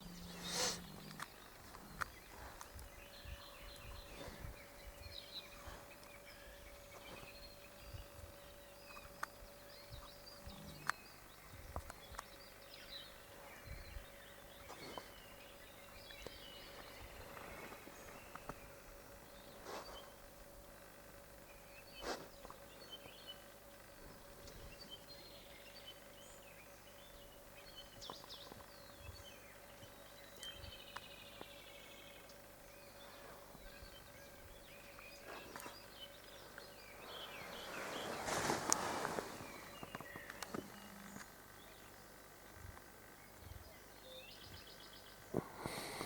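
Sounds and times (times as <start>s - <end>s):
faint steady hum: 0.0s - 46.0s
bird chirps: 24.4s - 42.0s.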